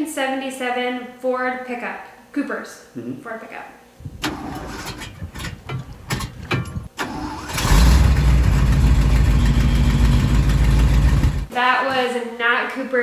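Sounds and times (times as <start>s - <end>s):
truck engine cranking: 4.0s - 11.5s
truck engine running: 4.0s - 11.5s.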